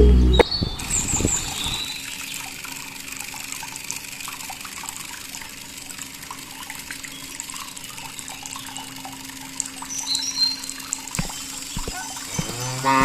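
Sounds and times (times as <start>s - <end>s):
music sting: 0.0s - 0.4s
trickling water: 1.8s - 13.0s.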